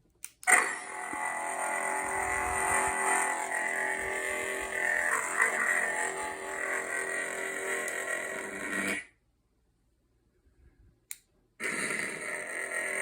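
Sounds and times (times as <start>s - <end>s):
lightsaber ignition and electric hum: 0.2s - 9.1s.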